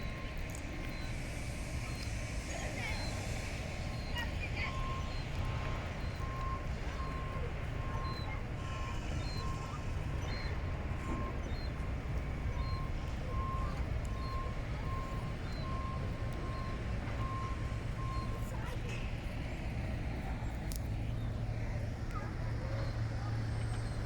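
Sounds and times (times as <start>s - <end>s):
low rumble: 0.0s - 18.4s
electronic warning beeps: 0.0s - 18.5s.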